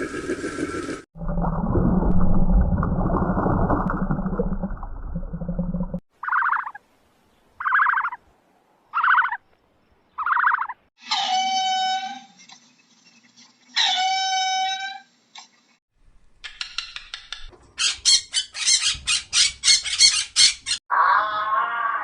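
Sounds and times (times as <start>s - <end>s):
harsh squawks: 7.6s - 8.2s, 8.9s - 9.4s, 10.2s - 12.3s.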